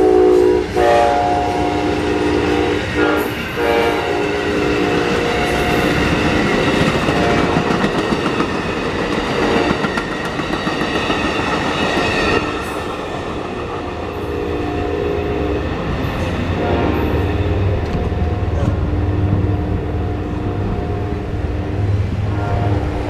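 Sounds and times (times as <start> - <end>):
train wheel noise: 0.0 - 23.0
crossing warning bell ringing: 3.5 - 8.0.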